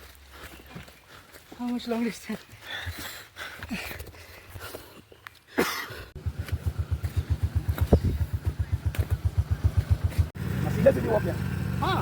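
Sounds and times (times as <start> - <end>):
motorcycle engine running: 6.2 - 12.0.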